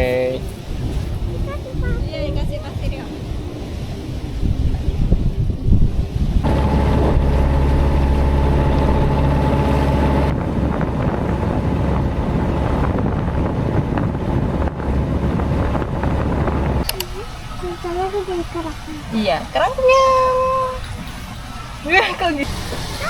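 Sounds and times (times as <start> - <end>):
rushing noise: 6.4 - 17.6
boat engine running: 6.4 - 18.3.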